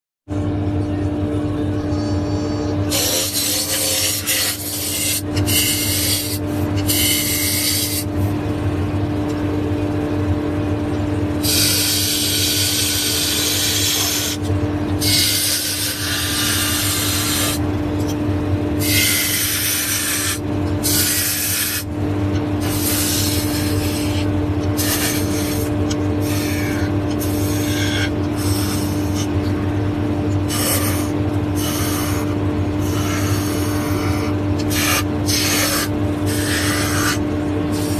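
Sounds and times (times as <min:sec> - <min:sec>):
tool rasping wood: 0:02.9 - 0:08.1, 0:11.4 - 0:14.4, 0:15.0 - 0:17.6, 0:18.8 - 0:21.9, 0:22.6 - 0:29.4, 0:30.4 - 0:37.9
power tool motor humming: 0:11.4 - 0:17.6, 0:18.8 - 0:21.9, 0:22.6 - 0:29.4, 0:30.4 - 0:37.9.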